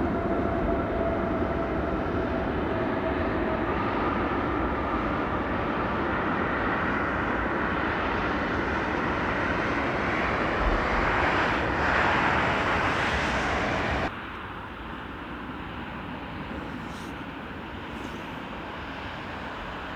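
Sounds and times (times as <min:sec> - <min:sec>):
jet engines roaring: 0:00.0 - 0:19.9.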